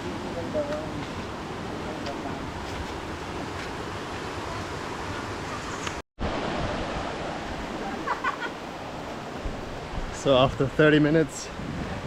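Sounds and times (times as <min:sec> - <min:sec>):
waterfall rushing into pool: 0:04.4 - 0:11.2.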